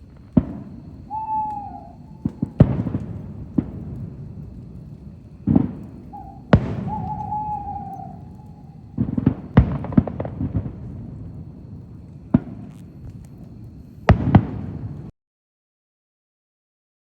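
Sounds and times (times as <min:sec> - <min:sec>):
fireworks bangs with rolling rumble: 0:00.0 - 0:15.1.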